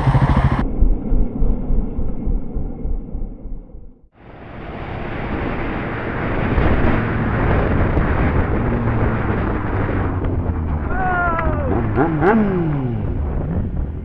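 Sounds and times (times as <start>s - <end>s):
motorcycle engine hum: 0.0s - 14.0s
wind rushing over microphone: 4.2s - 14.0s.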